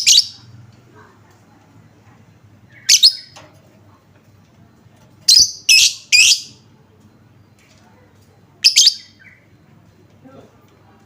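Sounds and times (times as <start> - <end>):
lovebird shrill chirps: 2.7 - 3.4, 5.3 - 6.6, 8.6 - 9.4.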